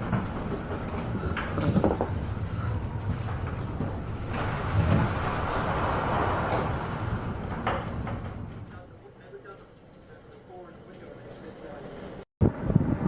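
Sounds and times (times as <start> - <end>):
low rumble: 0.0 - 9.0, 12.4 - 13.0
wind: 0.0 - 13.0.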